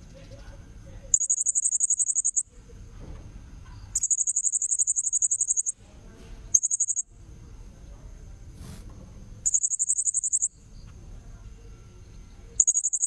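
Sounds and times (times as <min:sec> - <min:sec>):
faint steady high tone: 0:00.2 - 0:02.6, 0:03.7 - 0:05.8, 0:06.6 - 0:07.2, 0:09.4 - 0:13.0
parrot high rapid trills: 0:01.2 - 0:02.4, 0:04.0 - 0:05.7, 0:09.4 - 0:10.5, 0:12.6 - 0:13.0.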